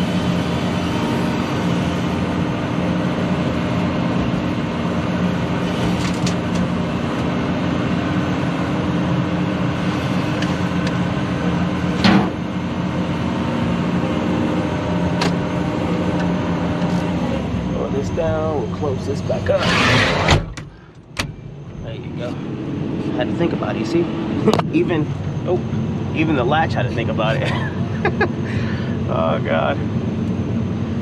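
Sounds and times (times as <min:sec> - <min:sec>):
diesel engine idling: 0:00.0 - 0:19.8
loud clunk: 0:12.0 - 0:12.4.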